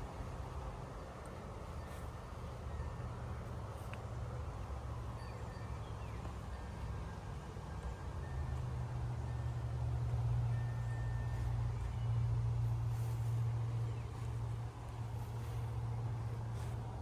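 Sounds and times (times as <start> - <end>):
rustling: 10.7 - 17.0.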